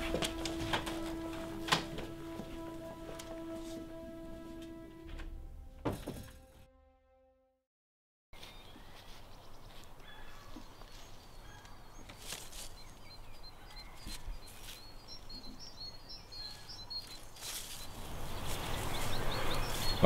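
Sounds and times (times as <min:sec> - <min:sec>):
small birds chirping: 0:08.4 - 0:20.0.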